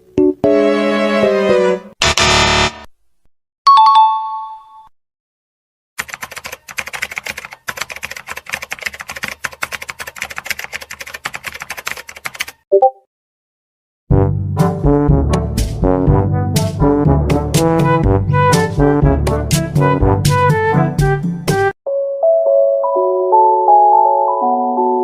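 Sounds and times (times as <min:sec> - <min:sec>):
computer keyboard typing: 0:06.0 - 0:12.6.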